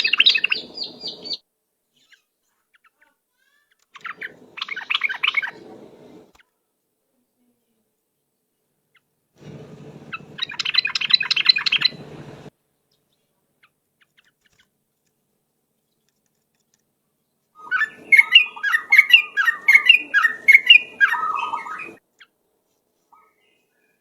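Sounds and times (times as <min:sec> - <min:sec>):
bulbul singing: 0:00.0 - 0:01.4, 0:04.0 - 0:06.2, 0:09.4 - 0:12.5, 0:17.6 - 0:22.0.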